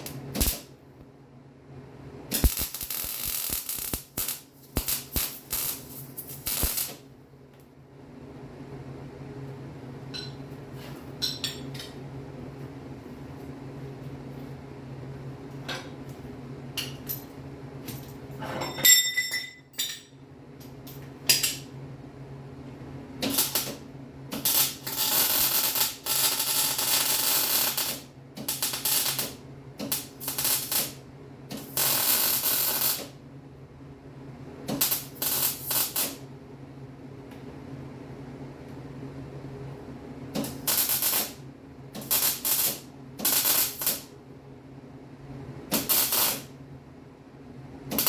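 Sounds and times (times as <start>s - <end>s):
welding crackling: 0.0s - 0.6s, 2.3s - 7.0s, 23.3s - 23.8s, 24.4s - 29.3s, 29.9s - 31.0s, 31.6s - 33.0s, 34.8s - 36.2s, 40.4s - 41.4s, 42.0s - 44.1s, 45.8s - 46.5s
metal clang ringing: 18.4s - 20.1s.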